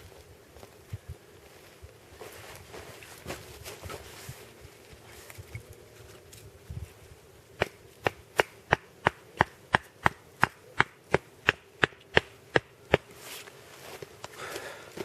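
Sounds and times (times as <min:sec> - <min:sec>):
rustling: 0:00.0 - 0:07.1, 0:13.1 - 0:15.0
stake hammered into ground: 0:07.6 - 0:13.1.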